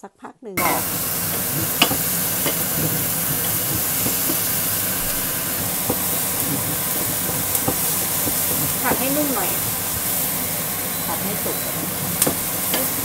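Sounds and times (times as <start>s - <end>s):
onion sizzling in hot oil: 0.6s - 13.0s
wooden spatula scraping pot: 0.6s - 13.0s.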